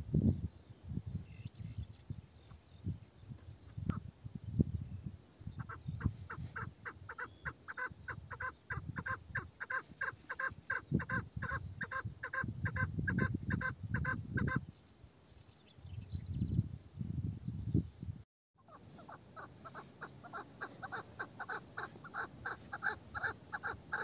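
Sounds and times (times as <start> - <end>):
partridge clucking calls: 5.6 - 14.6, 18.6 - 24.0.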